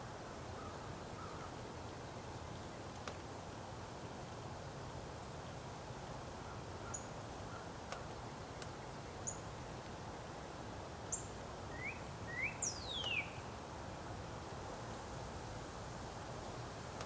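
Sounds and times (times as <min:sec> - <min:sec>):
small birds chirping: 0:11.1 - 0:13.5.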